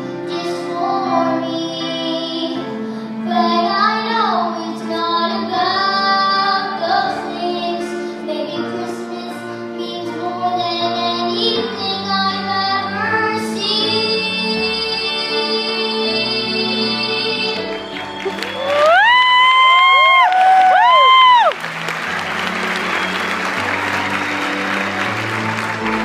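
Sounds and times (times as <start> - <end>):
instrumental accompaniment: 0.0 - 26.0
child singing: 0.2 - 17.8.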